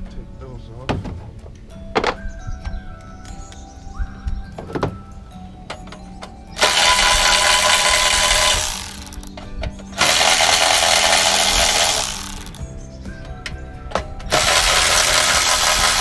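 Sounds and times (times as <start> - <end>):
power driver backing out screws: 5.7 - 12.6, 13.9 - 16.0.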